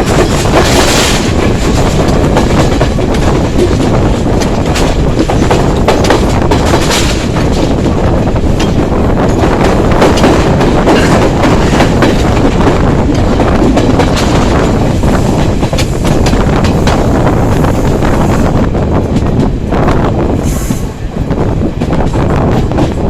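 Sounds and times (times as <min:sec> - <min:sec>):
wheels clicking over rail joints: 0:00.0 - 0:17.1
train rumbling along track: 0:00.0 - 0:23.0
wind buffeting microphone: 0:00.0 - 0:23.0.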